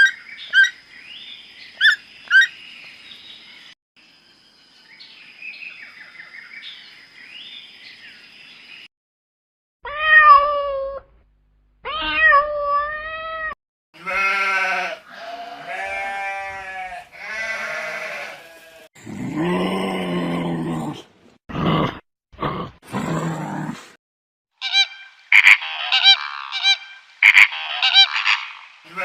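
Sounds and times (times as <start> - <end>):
animal calls: 0.0 - 0.8, 1.8 - 2.6, 24.6 - 29.0.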